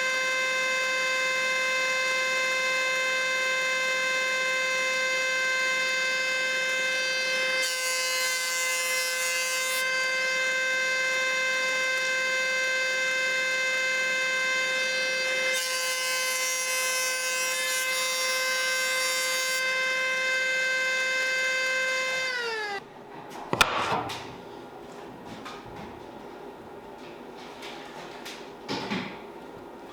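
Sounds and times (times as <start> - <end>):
power tool motor whine: 0.0 - 8.5, 10.0 - 22.8
saw rasping into wood: 6.4 - 22.8.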